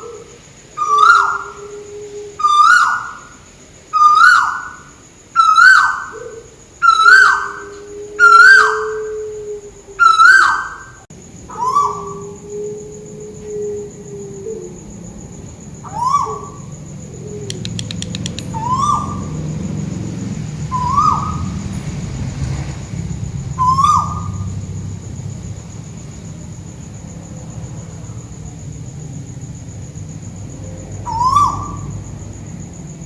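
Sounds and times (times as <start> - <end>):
bird call sweeping upward: 17.2 - 19.6.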